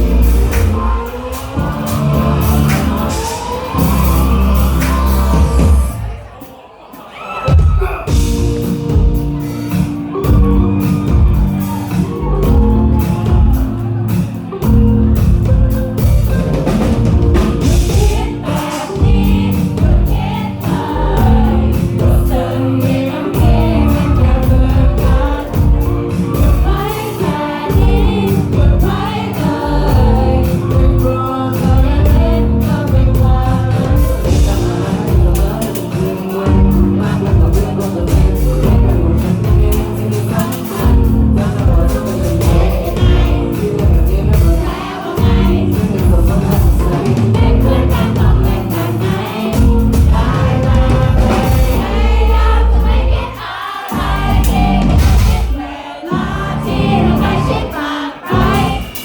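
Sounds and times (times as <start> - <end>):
crowd singing together: 0.0 - 59.0
live pop-rock band: 0.0 - 59.0.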